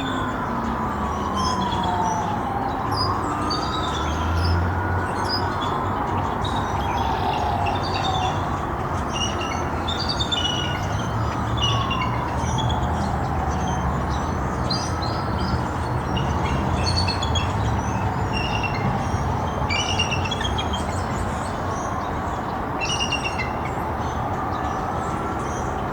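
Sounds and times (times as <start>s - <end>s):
siren wailing: 0.0s - 9.9s.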